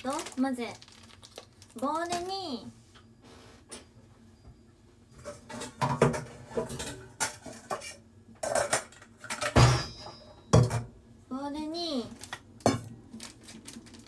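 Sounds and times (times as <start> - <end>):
dishware clinking and knocking: 5.2 - 10.9.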